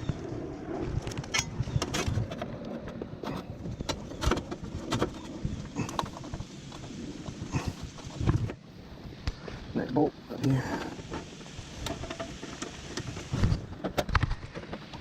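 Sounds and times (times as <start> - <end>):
steady rain: 4.6 - 15.0.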